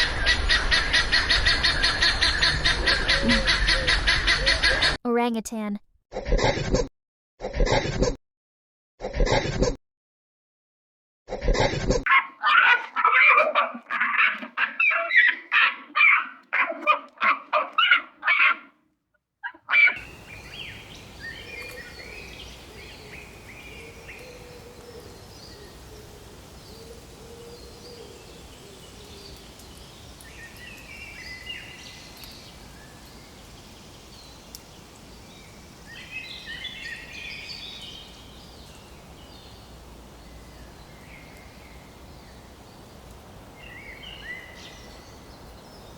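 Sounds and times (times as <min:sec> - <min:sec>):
outdoor ambience: 0:11.4 - 0:18.8, 0:19.4 - 0:45.9
animal giving rapid loud calls: 0:12.1 - 0:18.7, 0:19.4 - 0:20.0.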